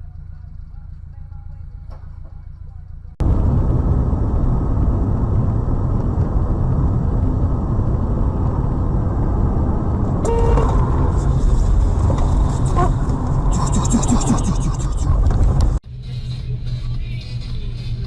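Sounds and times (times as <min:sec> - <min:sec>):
car road and engine rumble: 0:00.0 - 0:18.0
brief pitched tone: 0:10.2 - 0:10.8.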